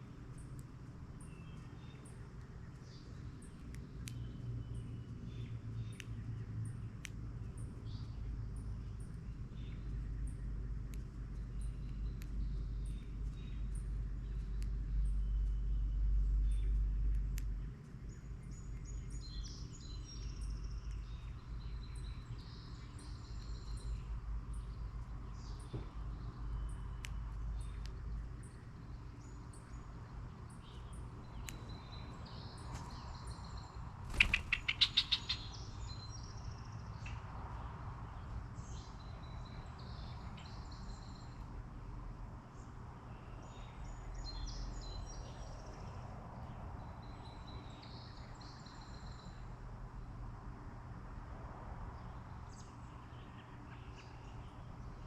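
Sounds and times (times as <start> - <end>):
songbirds chirping: 0.0 - 55.0
bird harsh rapid call: 34.1 - 35.5.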